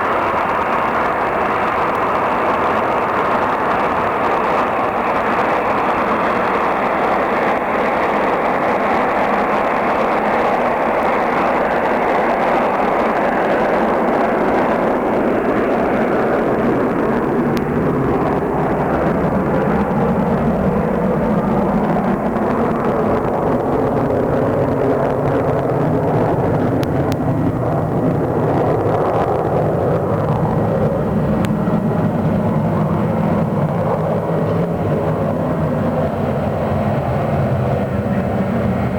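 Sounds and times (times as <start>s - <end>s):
jet airliner at takeoff power: 0.0s - 38.9s.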